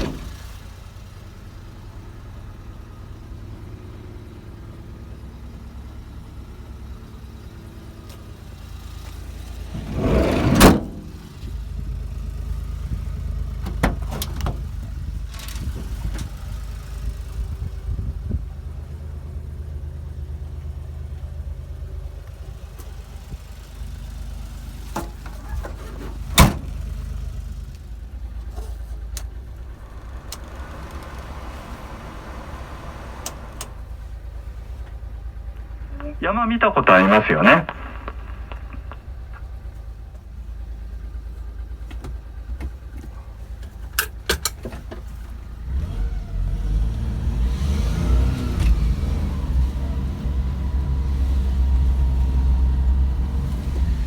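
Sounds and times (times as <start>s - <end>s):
sliding door slamming shut: 0.0s - 0.4s, 9.6s - 11.4s, 25.6s - 26.8s
van engine idling: 0.0s - 54.0s.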